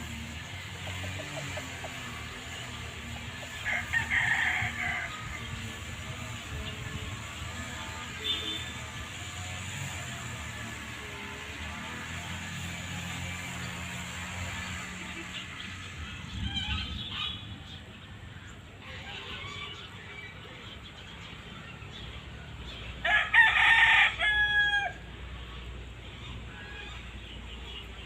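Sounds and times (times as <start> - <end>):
chicken calls: 0.0 - 8.2, 18.5 - 20.7
rooster crowing: 3.5 - 5.6, 23.0 - 25.1.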